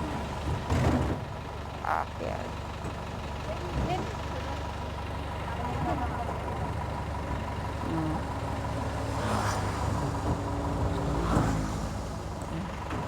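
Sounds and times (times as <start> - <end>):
truck engine running: 0.0 - 9.0.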